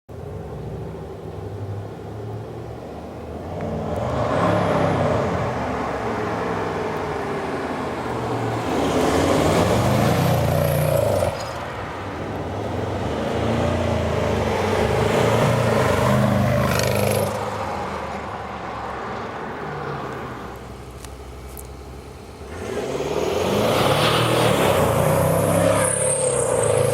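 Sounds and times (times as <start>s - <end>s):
diesel engine revving: 8.2s - 17.8s, 22.4s - 26.9s.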